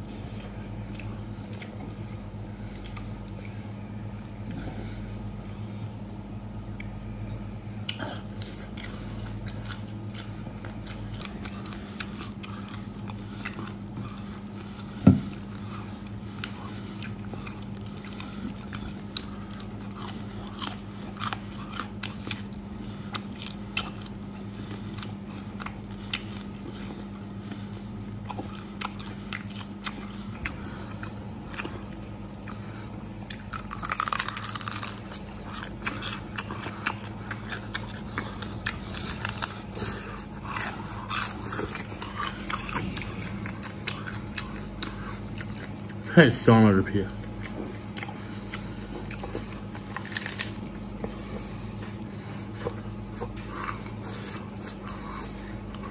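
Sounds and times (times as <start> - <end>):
chewing and crunching: 0.0 - 55.9
low hum: 0.0 - 55.9.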